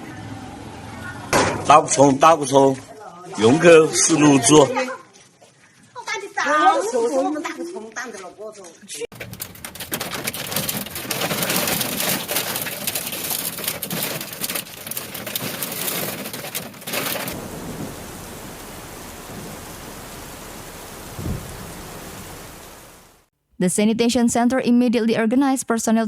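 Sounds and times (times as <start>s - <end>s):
heavy rain pelting hard surfaces: 9.1s - 23.3s
steady rain hiss: 9.7s - 23.3s.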